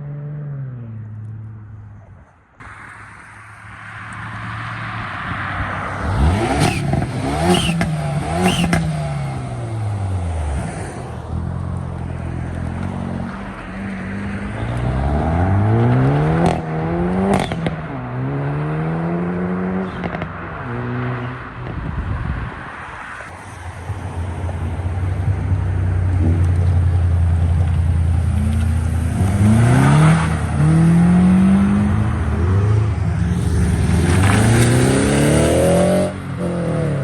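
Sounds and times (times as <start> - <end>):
car engine revving: 2.6 - 11.5, 12.1 - 21.4, 25.3 - 37.0
exhaust pops: 33.3 - 35.5.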